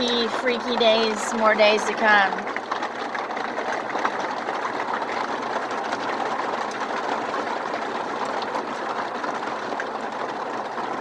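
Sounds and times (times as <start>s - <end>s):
heavy rain with hail: 0.0s - 11.0s.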